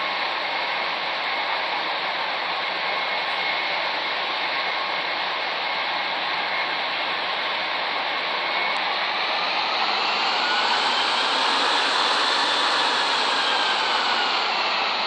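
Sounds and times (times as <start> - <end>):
jet engines rushing: 8.7 - 15.0
faint rising whine: 8.8 - 15.0.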